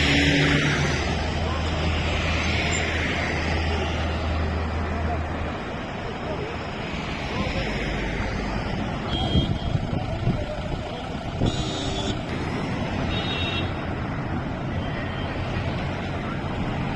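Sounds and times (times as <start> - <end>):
road traffic engine and tyre noise: 0.0 - 16.9
vehicle horn honks: 9.1 - 9.8, 11.4 - 12.3, 13.0 - 13.8.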